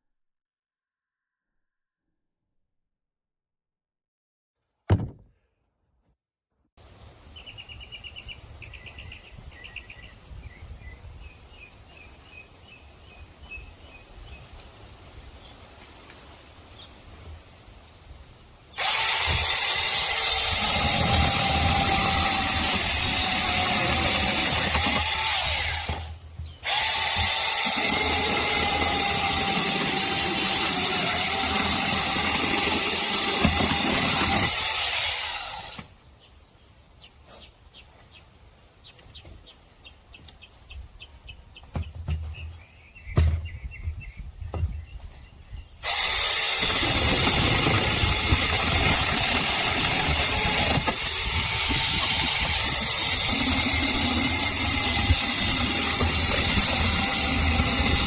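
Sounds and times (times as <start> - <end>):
mini chainsaw whine: 18.8 - 35.9, 45.8 - 58.0.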